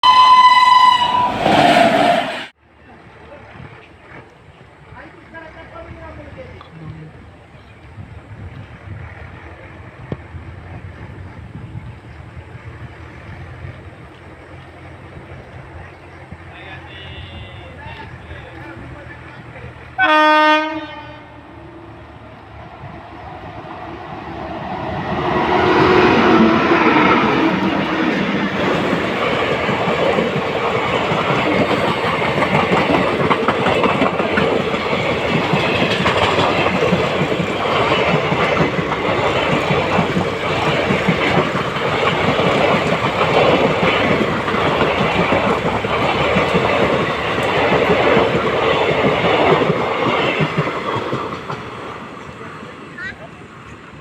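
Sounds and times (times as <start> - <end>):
train passing at speed: 0.0 - 54.0
wheels clattering over rail joints: 26.1 - 52.4.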